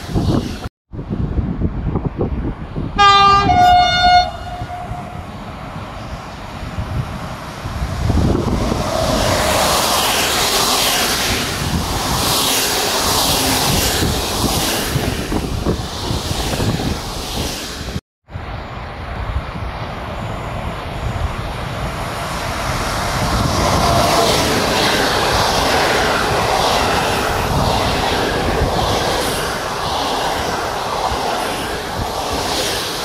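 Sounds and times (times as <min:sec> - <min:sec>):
train passing on rails: 0:00.0 - 0:33.0
wind buffeting microphone: 0:00.0 - 0:33.0
train horn blasts: 0:03.0 - 0:05.3.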